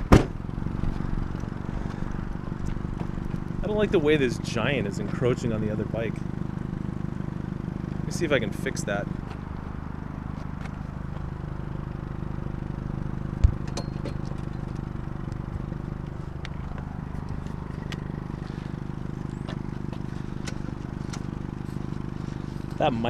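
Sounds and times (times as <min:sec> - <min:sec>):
low hum: 0:00.0 - 0:23.0
hard thump: 0:00.1 - 0:00.4.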